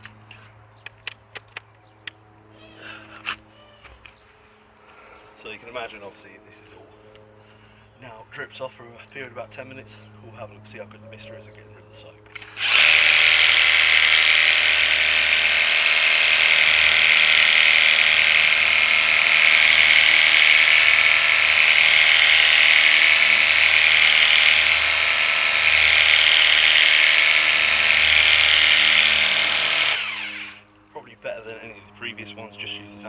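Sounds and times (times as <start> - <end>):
pressure washer motor whine: 12.4 - 30.7.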